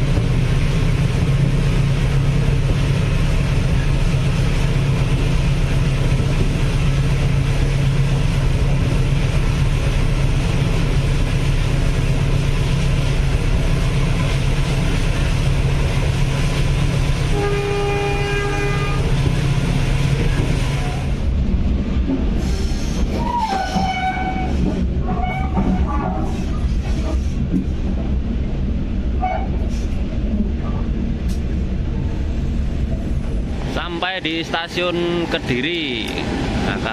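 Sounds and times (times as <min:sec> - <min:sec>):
passenger train rumbling: 0:00.0 - 0:36.9
locomotive horn: 0:17.3 - 0:19.1, 0:23.2 - 0:26.1, 0:29.2 - 0:29.6.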